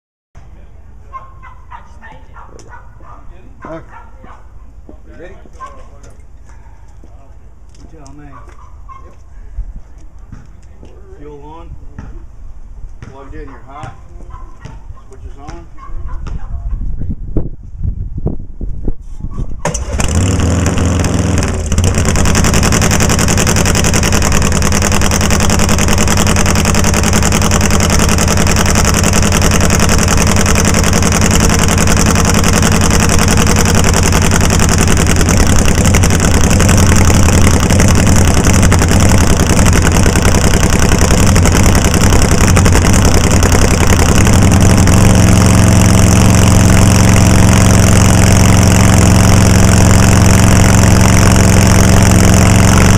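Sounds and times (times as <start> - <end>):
motorcycle engine starting and running: 19.6 - 52.9.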